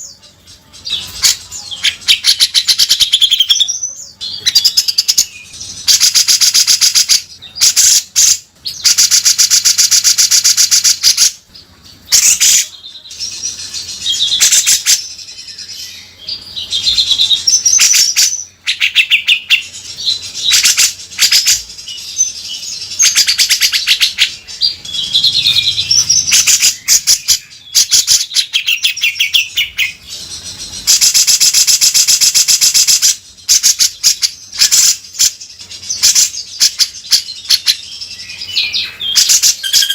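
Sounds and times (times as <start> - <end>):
bird whistled phrases: 36.0 - 39.9.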